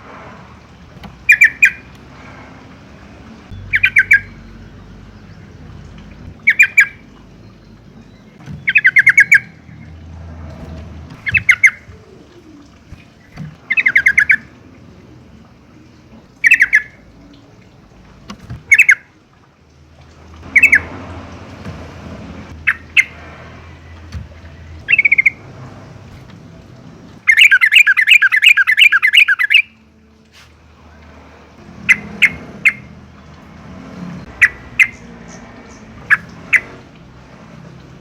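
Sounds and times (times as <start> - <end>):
bird chattering call: 1.3 - 1.8, 3.6 - 4.4, 6.4 - 7.0, 8.6 - 9.7, 11.2 - 14.5, 16.4 - 16.9, 20.5 - 20.9, 24.8 - 25.4, 27.3 - 29.7.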